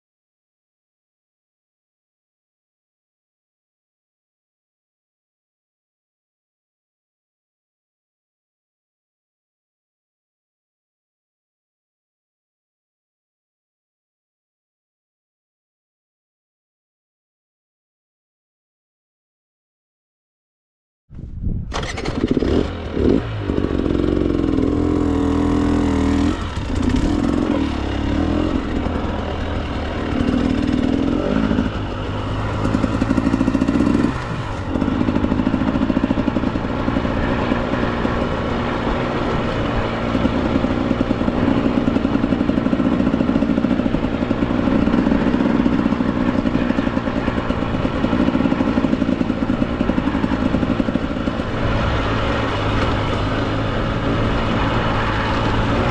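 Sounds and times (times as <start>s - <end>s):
dirt bike engine revving: 21.7s - 55.9s.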